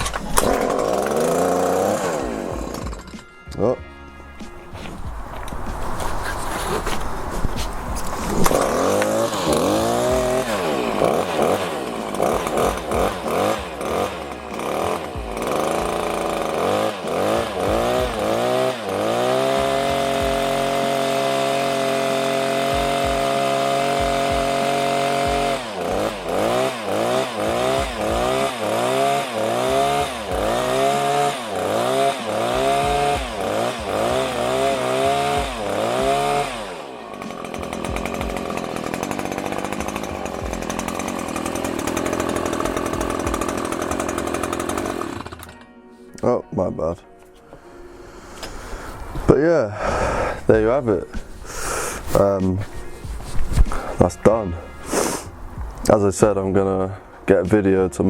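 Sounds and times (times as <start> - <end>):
hedge trimmer engine revving: 0.0 - 3.6, 4.2 - 45.7, 48.3 - 57.4.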